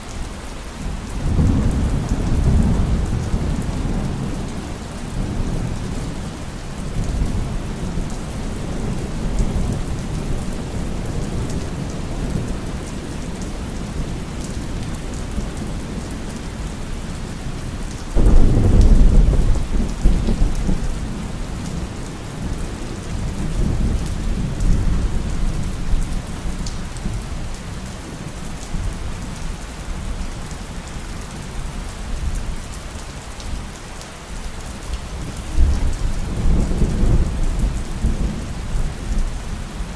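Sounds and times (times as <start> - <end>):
heavy rain: 0.0 - 39.9
thunder rumbling: 1.2 - 16.8, 18.1 - 27.4, 35.3 - 39.9
loud thunderclap: 18.2 - 21.9.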